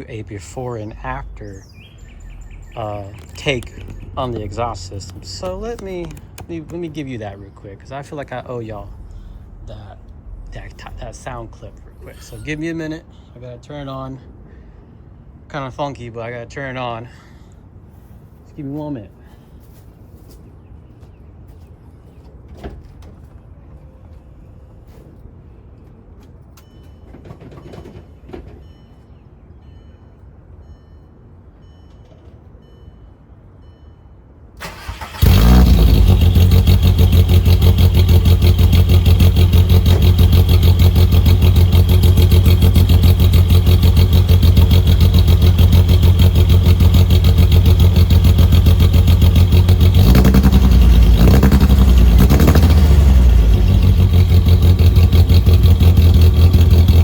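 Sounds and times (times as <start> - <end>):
car engine starting and idling: 0.0 - 14.0, 34.5 - 57.0
faint beeps: 0.9 - 6.0, 26.6 - 34.4
engine revving: 34.6 - 57.0.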